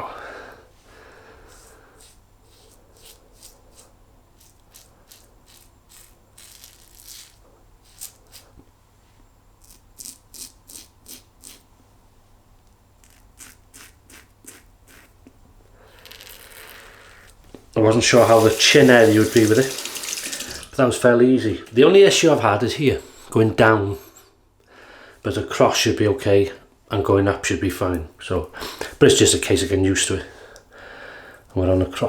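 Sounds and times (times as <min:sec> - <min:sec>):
razor scraping stubble: 0:01.4 - 0:08.6, 0:09.6 - 0:11.7, 0:13.0 - 0:15.3, 0:18.1 - 0:20.7.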